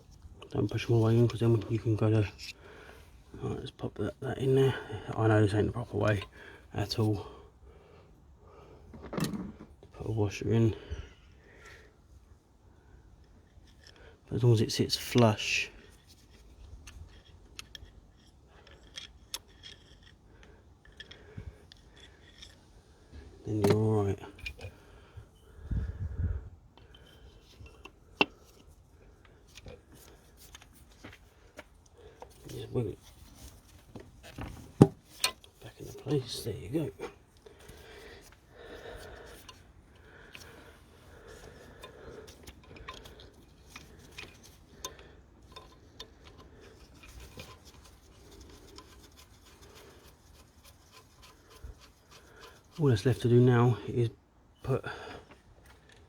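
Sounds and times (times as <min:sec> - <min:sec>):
light rubbing: 0:29.5 - 0:53.3
metal engine parts clicking: 0:37.7 - 0:53.2.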